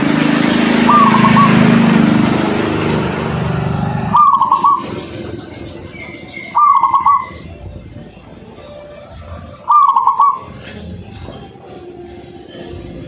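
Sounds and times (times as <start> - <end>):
motor vehicle running: 0.0 - 13.0
dove cooing: 0.8 - 2.0, 4.0 - 7.7, 9.0 - 11.0.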